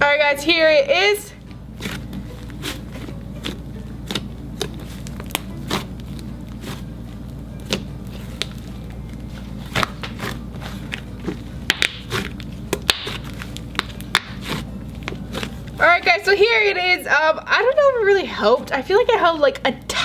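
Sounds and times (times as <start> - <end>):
steady low hum: 0.0 - 20.0
slime clicking and popping: 11.7 - 14.6.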